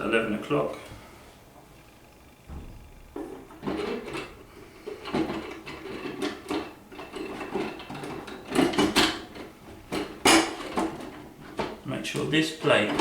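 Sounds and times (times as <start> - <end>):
sharp knocks: 2.4 - 4.4.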